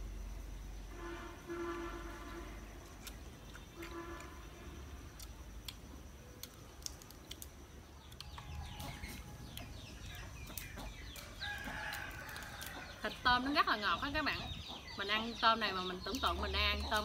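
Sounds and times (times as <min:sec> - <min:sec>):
chickens clucking: 0:08.3 - 0:17.0.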